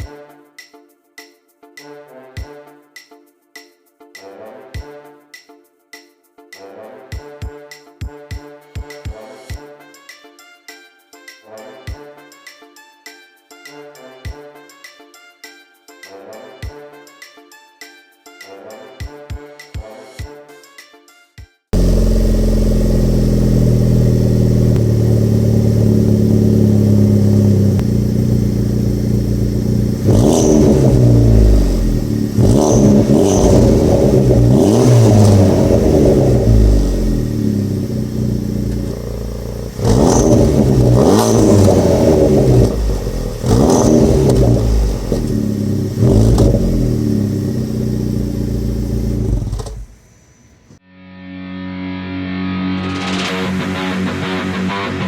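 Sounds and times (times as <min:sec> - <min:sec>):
car engine idling: 0:21.8 - 0:50.6
car engine revving in blips: 0:21.8 - 0:50.8.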